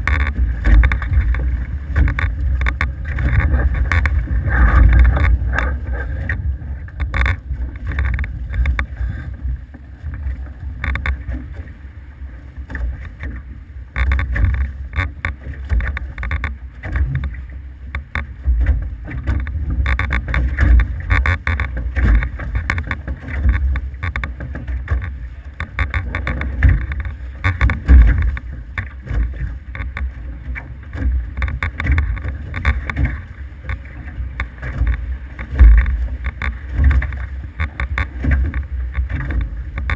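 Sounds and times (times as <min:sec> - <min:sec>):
wind buffeting microphone: 0:00.0 - 0:11.7
water rushing past boat: 0:00.0 - 0:39.9
water splashes and slaps: 0:00.0 - 0:39.9.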